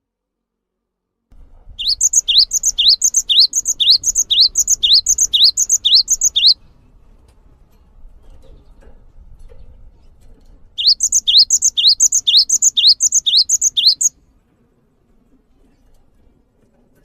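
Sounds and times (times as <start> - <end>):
songbird repeating a phrase: 1.8 - 6.6, 10.8 - 14.1.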